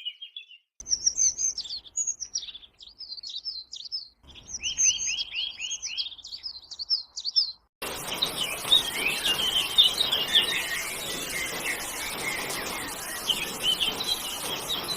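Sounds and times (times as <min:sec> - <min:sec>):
small birds chirping: 0:00.0 - 0:14.9
steady hiss: 0:07.8 - 0:14.9.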